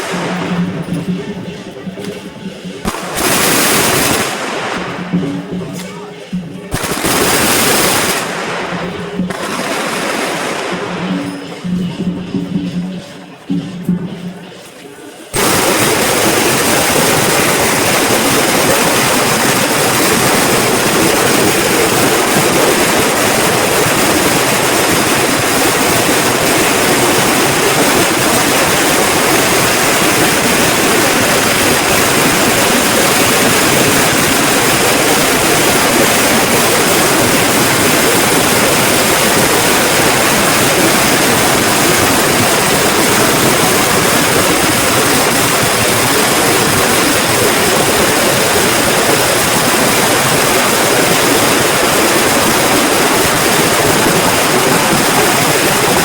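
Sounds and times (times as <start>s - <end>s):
string of firecrackers crackling: 0.0s - 56.0s.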